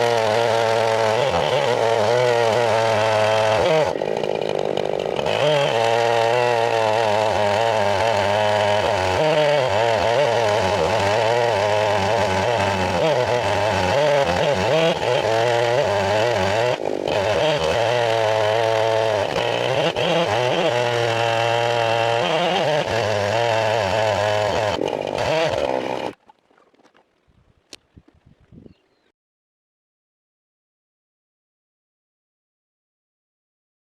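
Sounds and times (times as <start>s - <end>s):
chainsaw cutting wood: 0.0s - 26.2s.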